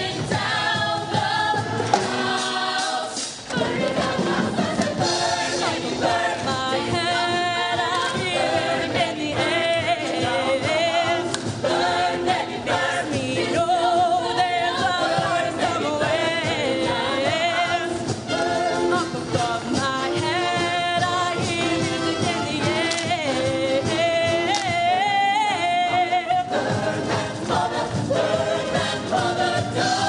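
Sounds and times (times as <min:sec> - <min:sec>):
choir singing: 0:00.0 - 0:30.0.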